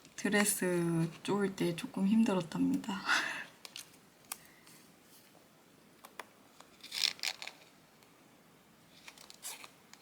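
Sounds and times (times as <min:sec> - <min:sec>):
paper rustling: 0:08.9 - 0:10.0.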